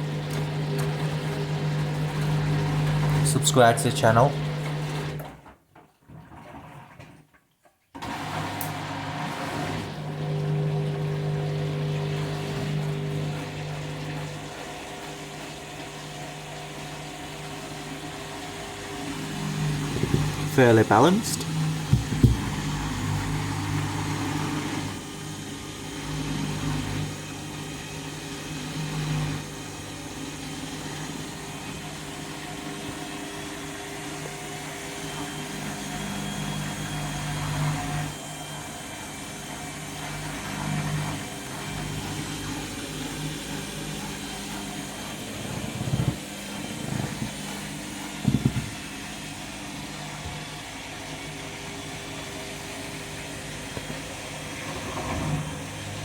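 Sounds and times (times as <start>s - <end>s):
washing machine spinning: 0.0s - 7.4s, 8.0s - 56.0s
washing machine thumps: 19.8s - 20.5s, 21.7s - 22.8s, 46.8s - 48.9s.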